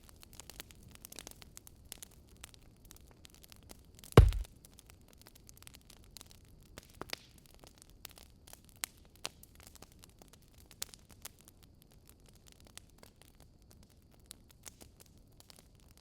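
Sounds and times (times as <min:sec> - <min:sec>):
wood fire crackling: 0:04.2 - 0:04.4.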